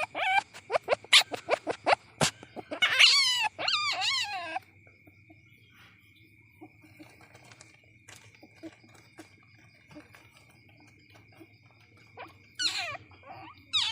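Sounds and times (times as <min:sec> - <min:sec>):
civet squealing: 0:00.0 - 0:04.7, 0:11.2 - 0:13.9.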